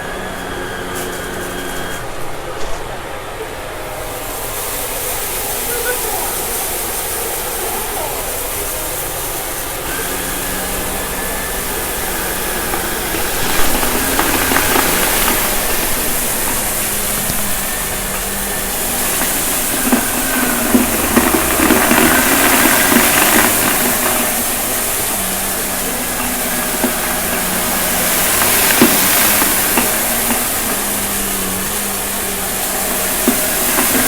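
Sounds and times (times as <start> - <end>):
debris crackling in vacuum: 0.0 - 34.0
vacuum cleaner running: 0.0 - 34.0.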